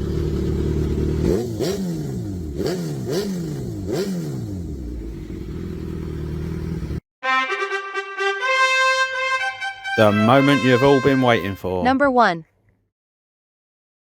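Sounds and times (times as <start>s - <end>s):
motorcycle engine revving and idling: 0.0s - 7.0s
brass-led music: 7.2s - 11.9s.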